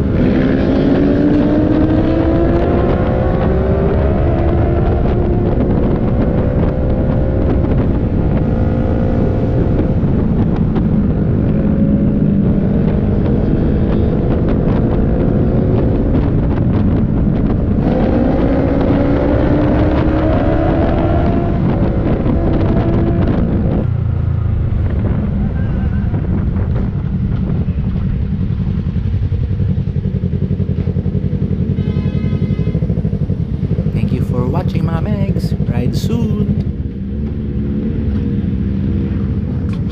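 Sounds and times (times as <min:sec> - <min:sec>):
motorcycle engine accelerating: 0:00.0 - 0:39.9
wind noise on microphone: 0:00.0 - 0:39.9.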